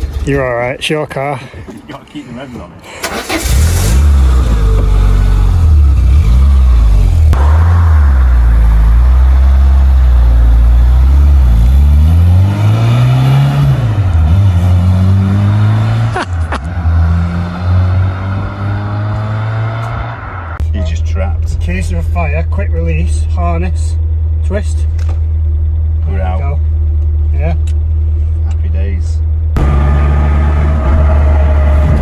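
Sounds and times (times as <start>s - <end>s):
car engine revving: 3.1s - 20.6s, 29.6s - 32.0s.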